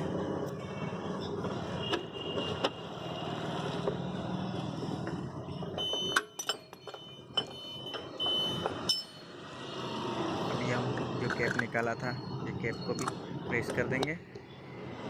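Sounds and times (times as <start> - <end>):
metallic spanner clinks: 6.2 - 8.0, 8.8 - 9.3.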